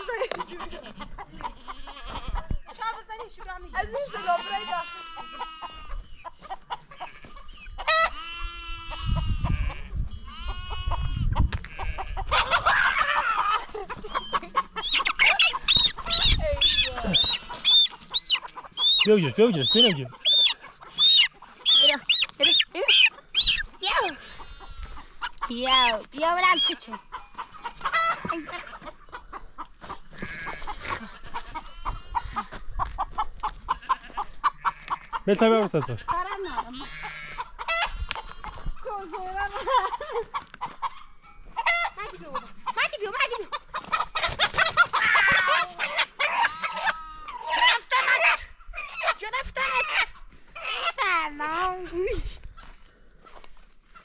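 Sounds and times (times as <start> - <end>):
goats bleating: 0.0 - 2.6, 3.8 - 6.0, 6.8 - 27.0, 28.0 - 29.0, 30.1 - 32.6, 33.5 - 35.4, 36.5 - 39.6, 45.0 - 48.2
chickens squawking and clucking: 0.0 - 51.5.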